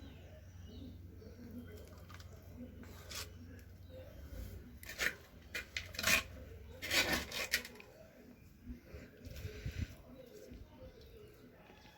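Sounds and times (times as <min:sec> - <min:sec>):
spoon scraping a pan: 0:04.8 - 0:07.8.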